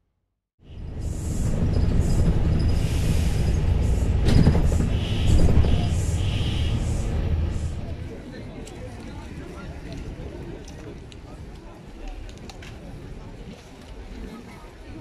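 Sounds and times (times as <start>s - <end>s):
train rumbling: 0.6s - 11.4s
train wheels squealing: 0.8s - 7.7s.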